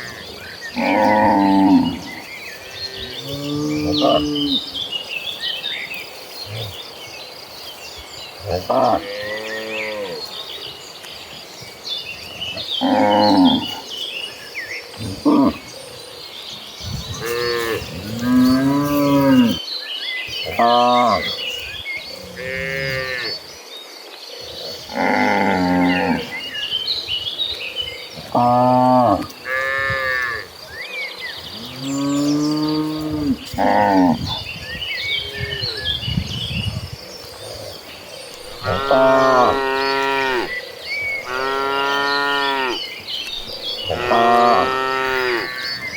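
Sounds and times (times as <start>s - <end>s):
cows mooing: 17.2s - 19.6s, 22.2s - 23.4s, 24.9s - 26.4s, 28.2s - 30.5s, 38.5s - 40.6s, 41.2s - 42.8s, 43.8s - 45.8s
cattle mooing: 43.9s - 45.6s.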